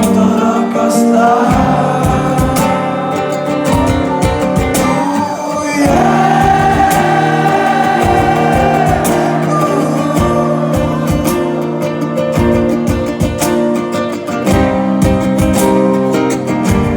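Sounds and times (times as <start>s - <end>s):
live band music: 0.0s - 16.9s
long held vocal note: 1.0s - 12.1s
sharp percussion hits: 1.4s - 16.9s.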